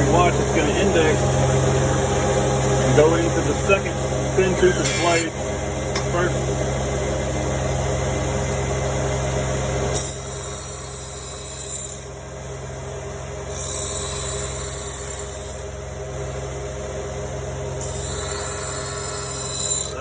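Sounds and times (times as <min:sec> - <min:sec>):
low motor hum: 0:00.0 - 0:20.0
high-pitched grinding hiss: 0:13.6 - 0:15.6, 0:17.8 - 0:20.0.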